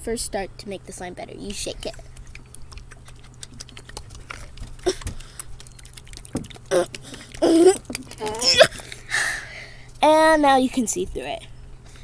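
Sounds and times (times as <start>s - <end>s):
child's voice: 0.0s - 2.0s, 6.7s - 8.7s, 10.0s - 11.5s.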